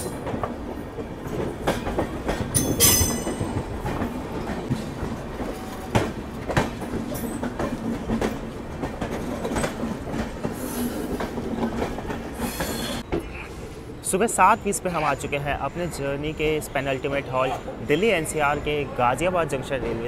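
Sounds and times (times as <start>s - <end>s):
train wheels clattering over joints: 0.0s - 13.8s
second train passing alongside: 0.0s - 20.0s.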